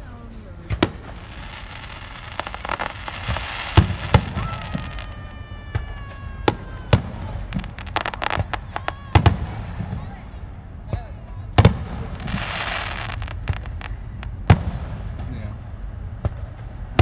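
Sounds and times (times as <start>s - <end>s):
crackling firework pops: 0.0s - 17.0s
fireworks bangs and pops: 0.0s - 17.0s
firework whistle falling in pitch: 2.3s - 10.7s.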